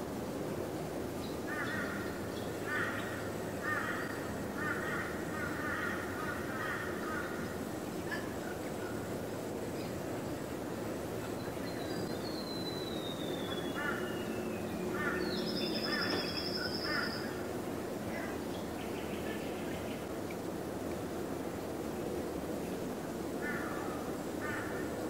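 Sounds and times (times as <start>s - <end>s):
steady low background noise: 0.0s - 25.0s
bird calling in harsh notes: 12.2s - 17.4s.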